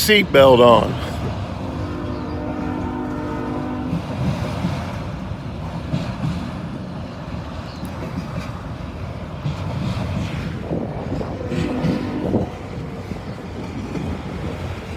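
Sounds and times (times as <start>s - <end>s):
freight train wheels rumbling: 0.0s - 14.9s
locomotive horn: 1.5s - 4.7s, 11.4s - 12.7s.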